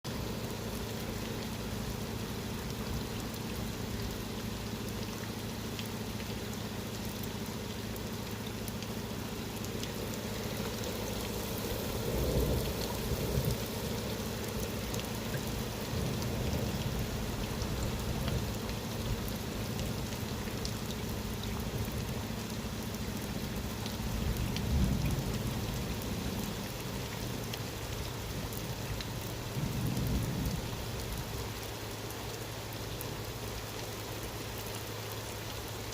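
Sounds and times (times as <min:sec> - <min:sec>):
steady rain falling: 0:00.0 - 0:35.9
low rumbles of thunder: 0:09.8 - 0:20.5, 0:24.0 - 0:27.4, 0:28.2 - 0:31.5.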